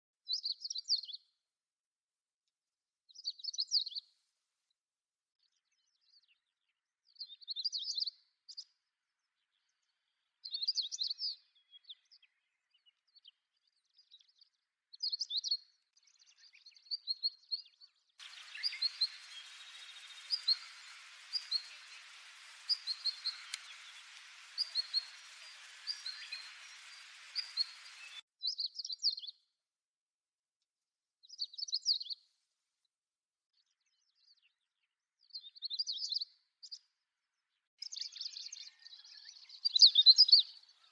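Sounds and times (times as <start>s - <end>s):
small bird chirping: 15.0s - 29.4s
steady hiss: 18.2s - 28.2s.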